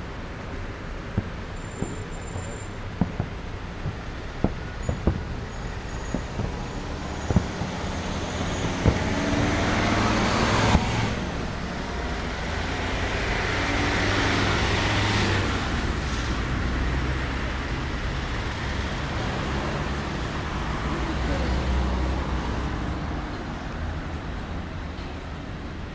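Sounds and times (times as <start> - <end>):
city traffic rumble: 0.0 - 25.9
firework bangs: 0.5 - 11.5.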